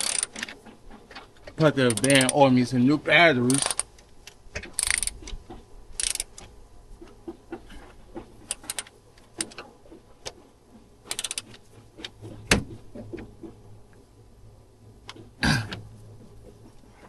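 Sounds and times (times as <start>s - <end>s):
rapid clicks: 8.2s - 13.6s.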